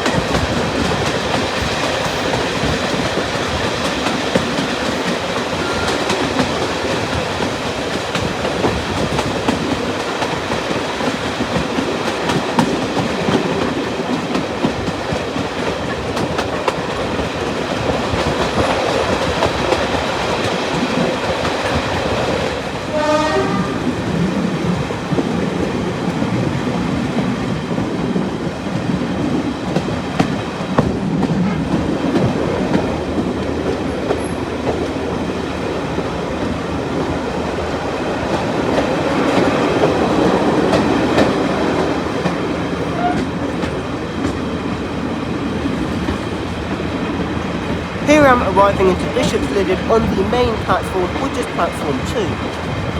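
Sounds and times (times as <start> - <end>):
wheels clicking over rail joints: 0.0 - 23.6
train running noise: 0.0 - 52.9
train horn blast: 22.9 - 23.9, 43.0 - 43.3.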